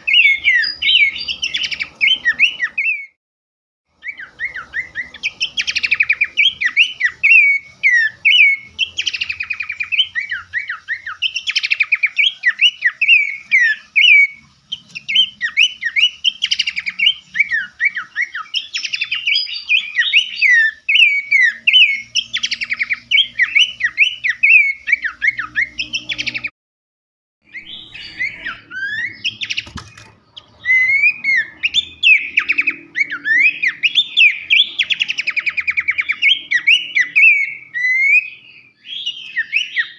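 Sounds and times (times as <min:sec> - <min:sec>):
songbird singing: 0:00.0 - 0:03.2, 0:03.9 - 0:26.5, 0:27.4 - 0:39.9.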